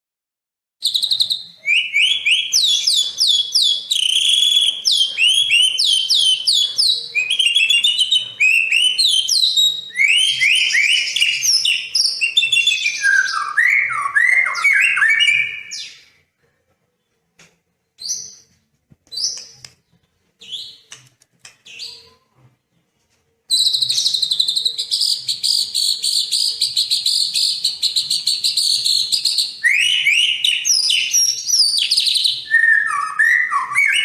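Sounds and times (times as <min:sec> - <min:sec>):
songbird whistling high notes: 0:23.5 - 0:34.0.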